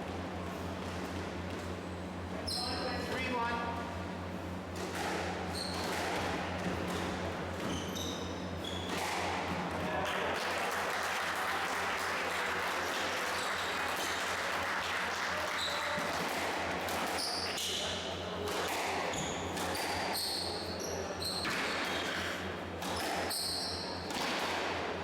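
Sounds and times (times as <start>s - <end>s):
shoe squeaks on court: 2.4s - 3.1s, 5.4s - 6.2s, 7.6s - 9.0s, 17.1s - 18.0s, 19.1s - 24.1s
squash ball hitting walls: 8.8s - 9.7s, 15.9s - 17.7s, 18.4s - 20.3s, 24.1s - 24.9s.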